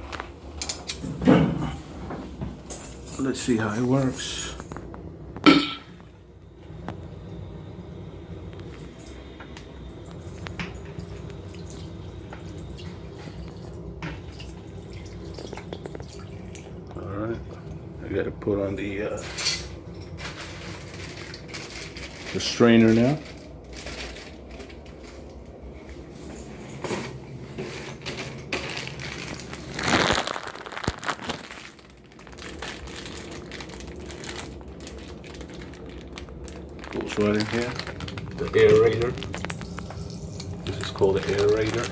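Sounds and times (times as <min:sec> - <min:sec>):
faucet water running into sink: 0:11.1 - 0:16.8, 0:38.4 - 0:41.9
plastic packaging crinkling: 0:18.7 - 0:25.6, 0:27.5 - 0:41.9.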